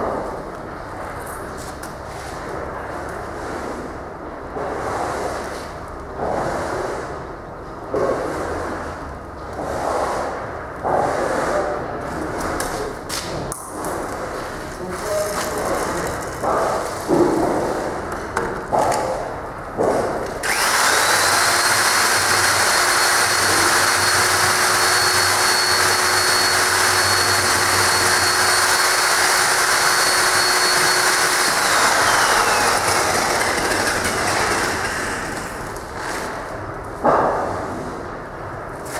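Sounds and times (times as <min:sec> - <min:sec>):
power tool whining: 0:20.4 - 0:36.1.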